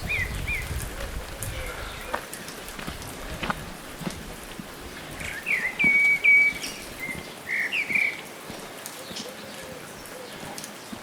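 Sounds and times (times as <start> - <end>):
steady outdoor hiss: 0.0 - 11.0
bird calling: 5.2 - 8.3, 8.9 - 11.0.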